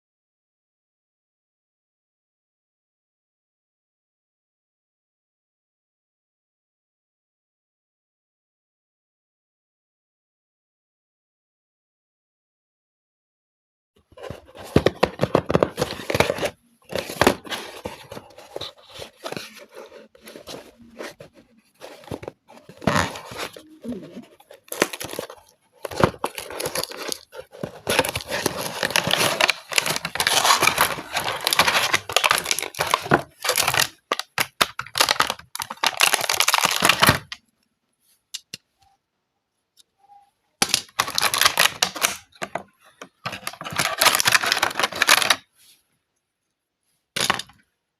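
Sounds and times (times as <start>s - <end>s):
packaging tearing and crinkling: 14.2s - 21.2s, 21.8s - 37.4s, 40.6s - 42.5s, 43.3s - 45.4s.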